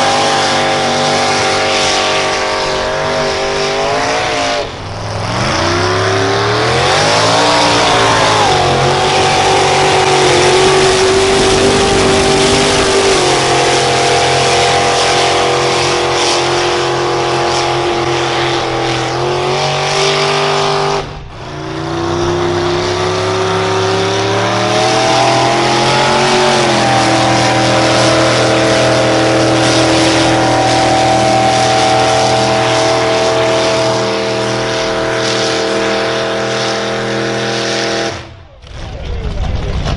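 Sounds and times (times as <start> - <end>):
engine revving under load: 0.0 - 38.9.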